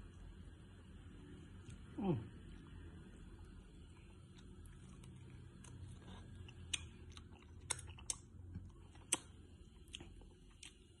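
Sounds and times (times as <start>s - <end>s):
steady low hum: 0.0s - 11.0s
person chewing: 1.5s - 11.0s
food crunches and clicks: 3.8s - 11.0s.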